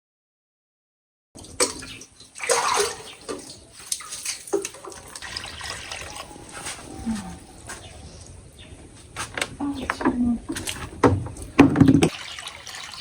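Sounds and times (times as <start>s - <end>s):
water running and splashing: 1.4s - 8.4s, 9.7s - 13.0s.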